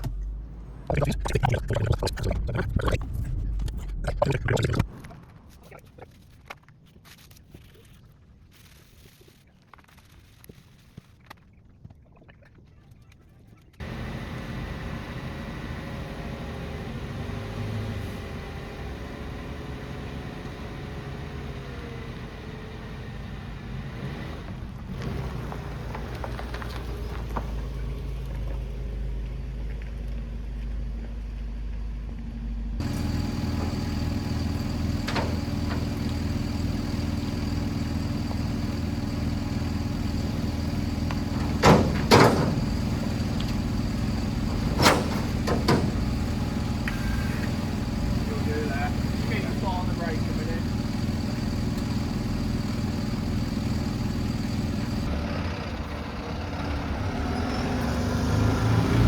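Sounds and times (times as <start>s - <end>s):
vehicle engine running: 13.8s - 59.0s.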